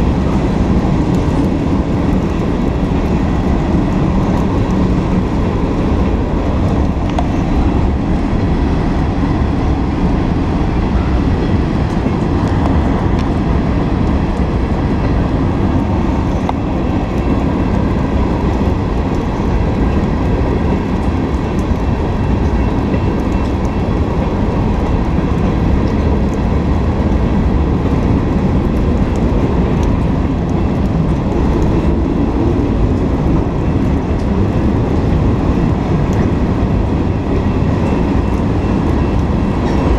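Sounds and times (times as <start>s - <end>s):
freight train rolling past: 0.0s - 39.9s.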